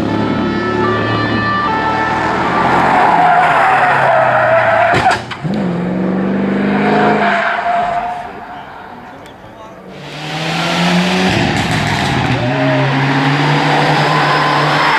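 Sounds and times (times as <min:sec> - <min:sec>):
car engine revving and shifting: 0:00.0 - 0:14.9
tyres squealing: 0:00.4 - 0:05.2, 0:06.9 - 0:10.9.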